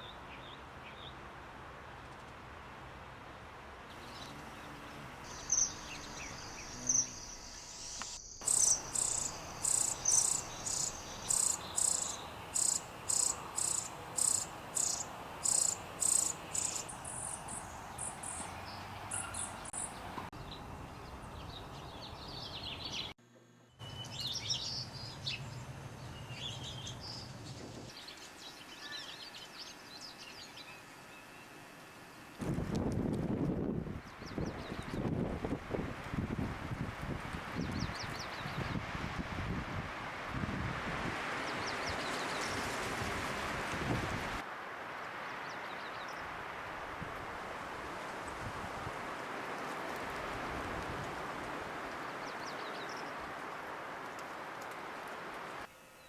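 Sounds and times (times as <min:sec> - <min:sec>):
high bird chirps: 0:05.3 - 0:20.6.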